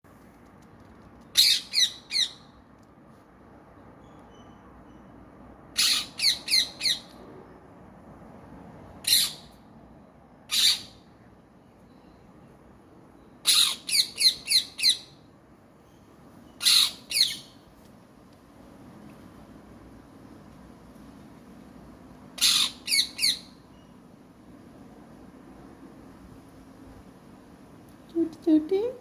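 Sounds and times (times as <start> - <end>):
parrot squawking: 1.4 - 2.4, 5.8 - 7.2, 9.0 - 9.5, 10.5 - 11.0, 13.4 - 15.1, 16.6 - 17.5, 22.4 - 23.5.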